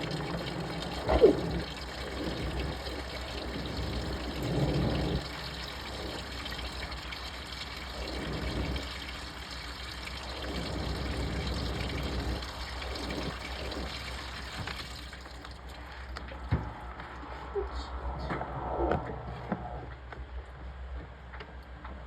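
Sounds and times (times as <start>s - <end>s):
water sloshing in washing machine: 0.0s - 17.5s.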